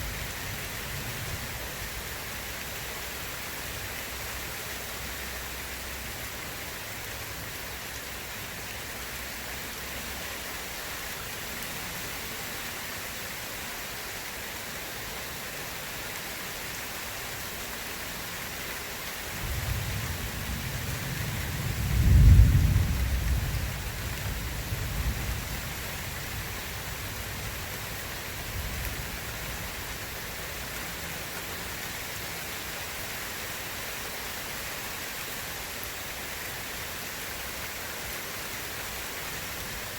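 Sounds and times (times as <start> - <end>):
steady rain hissing: 0.0 - 39.9
rolling thunder: 19.4 - 25.5.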